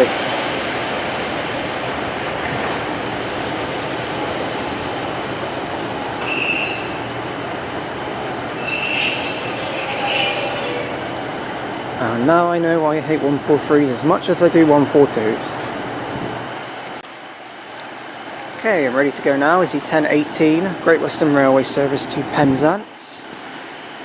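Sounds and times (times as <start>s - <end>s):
train running noise: 0.0s - 24.0s
high-pitched wheel squeal: 3.6s - 11.4s.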